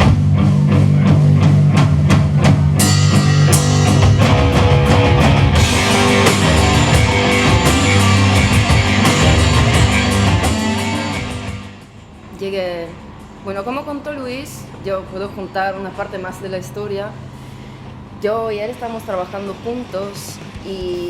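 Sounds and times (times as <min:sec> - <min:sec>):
heavy rock music: 0:00.0 - 0:11.9
cymbals crashing: 0:02.8 - 0:11.8.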